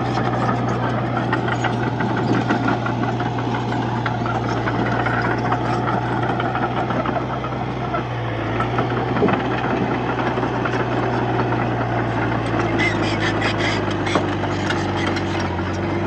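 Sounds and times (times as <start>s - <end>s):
dense rapid rattle: 0.0s - 7.6s
bulldozer diesel engine running: 0.0s - 16.0s.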